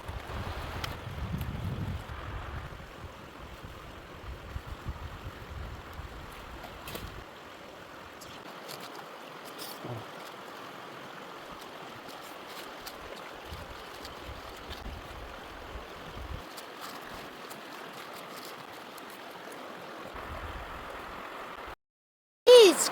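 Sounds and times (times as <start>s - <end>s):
wind buffeting the microphone: 0.0s - 7.3s, 13.4s - 16.4s
wood fire hissing and crackling: 0.0s - 21.6s.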